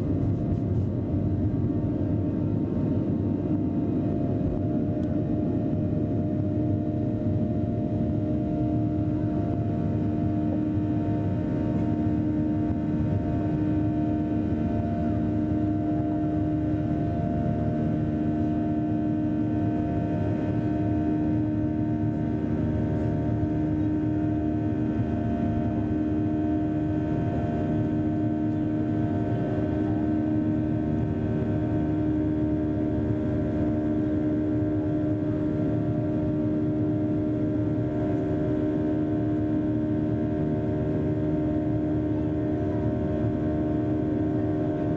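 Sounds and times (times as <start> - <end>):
airplane cabin engine drone: 0.0 - 44.9.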